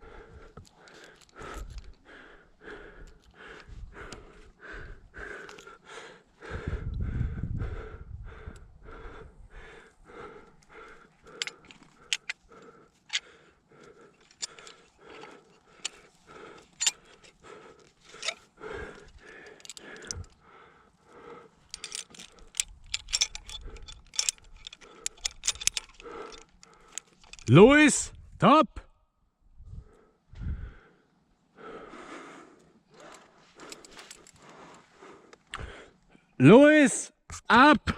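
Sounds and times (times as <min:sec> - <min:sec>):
person breathing hard: 0:00.0 - 0:27.5, 0:29.6 - 0:36.4
carabiners clinking: 0:00.6 - 0:02.0, 0:11.2 - 0:20.4, 0:21.5 - 0:28.0, 0:33.1 - 0:34.8.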